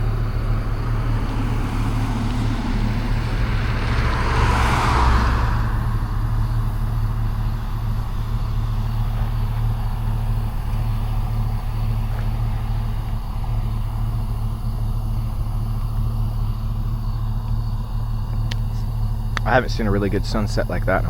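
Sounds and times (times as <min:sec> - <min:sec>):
car engine hum and road noise: 0:00.0 - 0:21.0.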